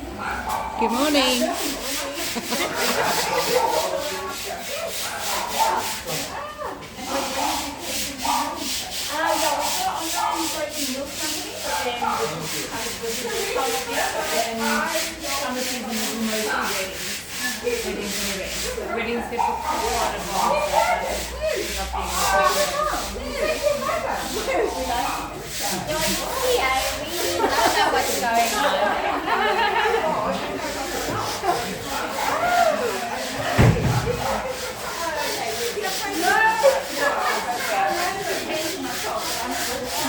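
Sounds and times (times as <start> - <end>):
rhythmic rubbing or scraping: 1.0 - 6.3, 7.1 - 40.0.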